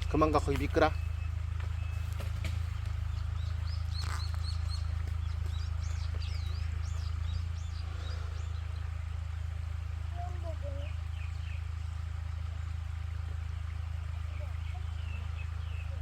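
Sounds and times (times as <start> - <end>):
small birds chirping: 0.0 - 16.0
steady low rumble: 0.0 - 16.0.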